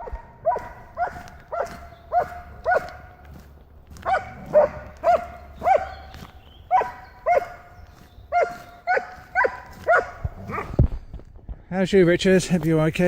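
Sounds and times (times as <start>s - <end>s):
dog barking: 0.0s - 3.2s, 4.0s - 7.7s, 8.3s - 10.8s.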